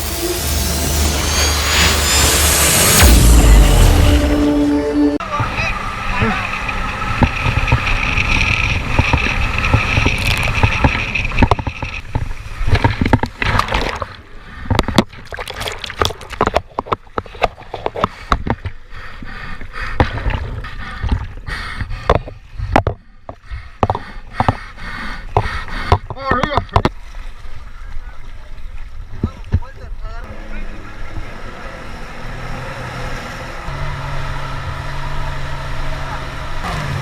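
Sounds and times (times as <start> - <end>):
steady whine: 0.0 - 13.6
low rumble: 0.0 - 14.7
water sloshing and splashing: 5.4 - 24.6, 25.2 - 30.0.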